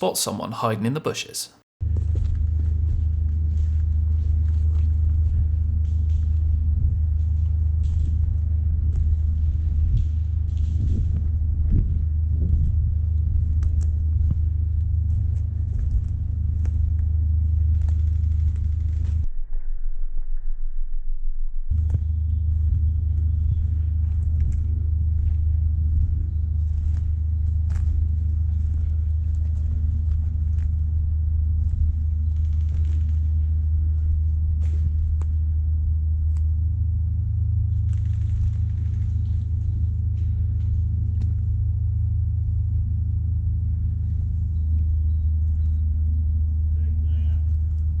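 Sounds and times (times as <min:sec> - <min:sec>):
steady low rumble: 0:00.0 - 0:48.0
faint clicks and rustles: 0:01.8 - 0:19.3, 0:21.7 - 0:48.0.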